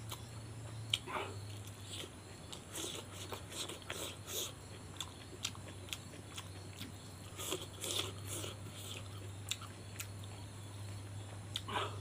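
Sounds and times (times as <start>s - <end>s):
person chewing food: 0.0s - 12.0s
steady low hum: 0.0s - 12.0s.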